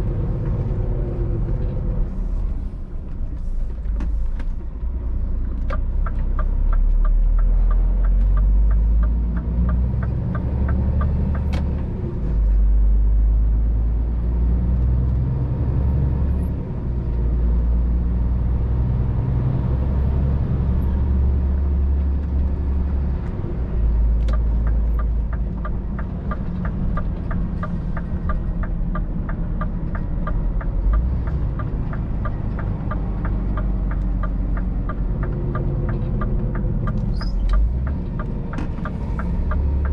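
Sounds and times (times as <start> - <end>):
truck diesel engine drone: 0.0 - 39.9
regular ticking: 5.7 - 11.5, 24.1 - 39.9.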